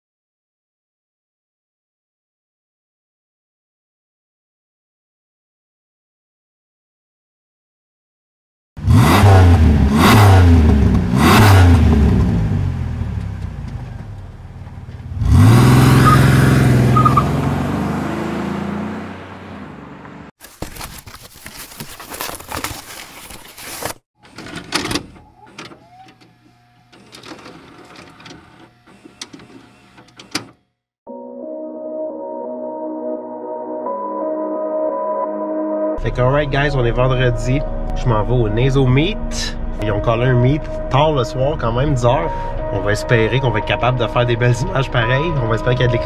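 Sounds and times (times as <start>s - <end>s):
car engine revving: 8.8s - 20.3s.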